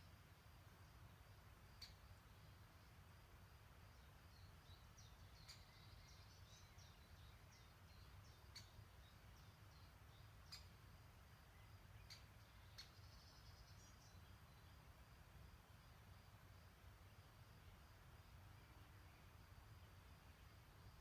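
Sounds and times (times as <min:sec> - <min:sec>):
birds chirping: 0:03.9 - 0:10.8, 0:11.4 - 0:14.9.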